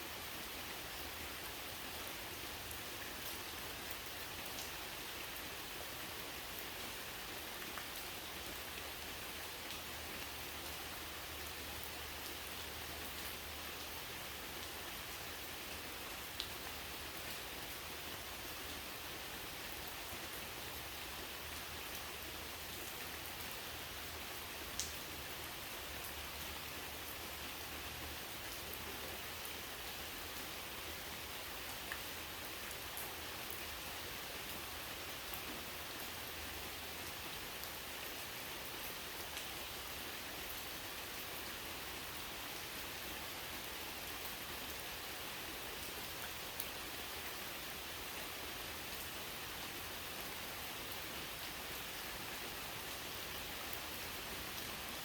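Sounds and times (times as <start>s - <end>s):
steady rain hissing: 0.0s - 55.0s
faint drip ticks: 24.7s - 25.0s.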